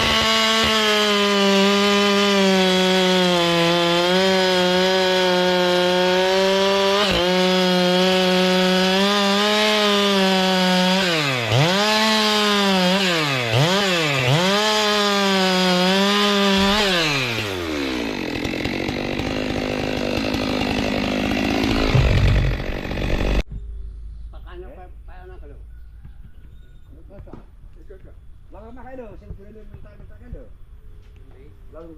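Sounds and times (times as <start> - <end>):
chainsaw cutting: 0.0 - 23.4.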